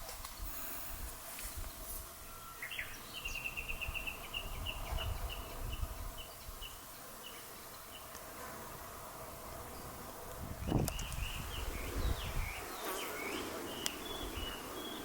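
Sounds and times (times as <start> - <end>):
songbird calling: 1.4 - 8.2, 10.7 - 15.0.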